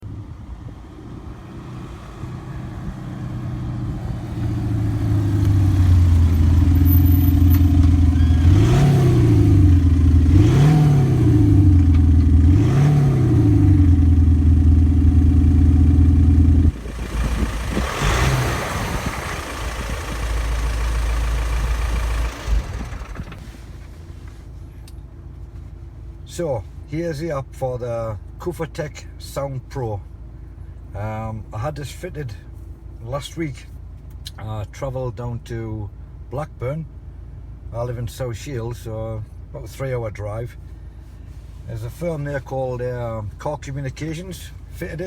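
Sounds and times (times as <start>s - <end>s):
simulated engine revving: 1.5s - 23.2s
rough diesel engine: 2.3s - 45.0s.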